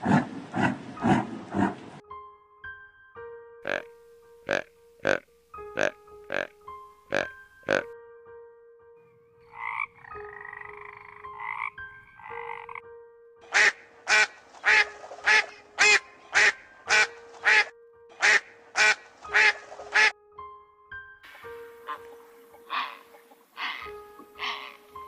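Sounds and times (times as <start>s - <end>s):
croaking animal calls: 3.6s - 7.9s, 9.4s - 12.8s, 13.5s - 20.1s, 21.6s - 25.0s.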